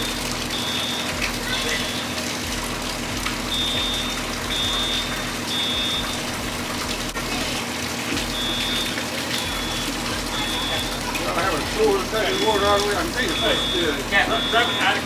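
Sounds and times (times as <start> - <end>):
water pouring from sprinklers: 0.0 - 15.0
high electronic beep: 3.5 - 6.2, 9.6 - 11.0, 12.2 - 15.0.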